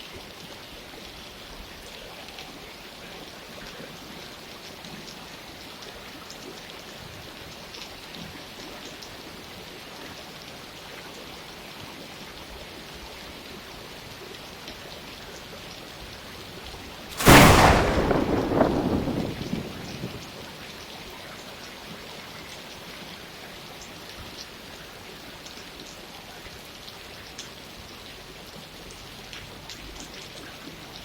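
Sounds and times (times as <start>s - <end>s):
loud thunderclap rumbling: 17.1s - 20.5s
steady rain: 17.1s - 20.9s.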